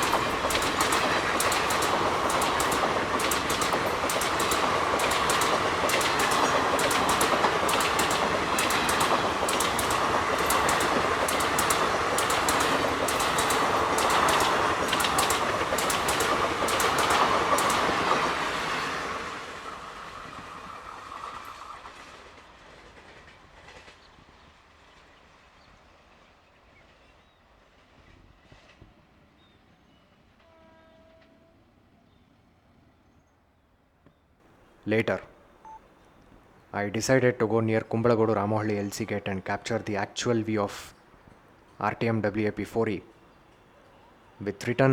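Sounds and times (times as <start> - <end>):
train wheels clattering past: 0.0 - 25.1.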